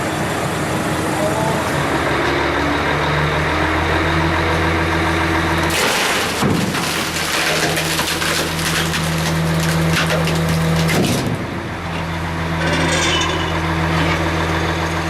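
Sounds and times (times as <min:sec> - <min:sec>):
truck engine idling: 0:00.0 - 0:07.2, 0:10.7 - 0:15.0
hydraulic compactor crushing load: 0:05.5 - 0:15.0.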